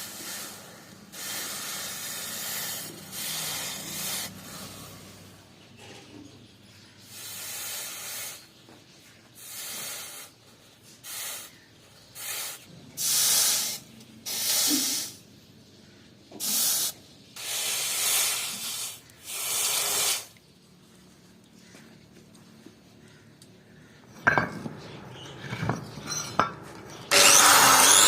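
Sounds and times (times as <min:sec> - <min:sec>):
short bursts of hissing noise: 0:00.0 - 0:05.2, 0:07.0 - 0:08.5, 0:09.4 - 0:10.4, 0:11.0 - 0:11.6, 0:12.2 - 0:15.2, 0:16.4 - 0:20.4.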